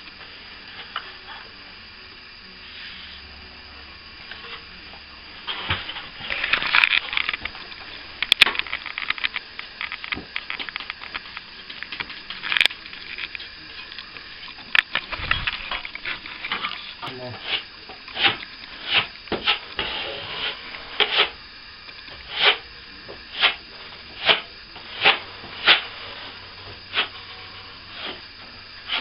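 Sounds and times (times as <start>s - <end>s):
hand tools scraping plaster: 16.5s - 21.4s, 22.1s - 28.2s.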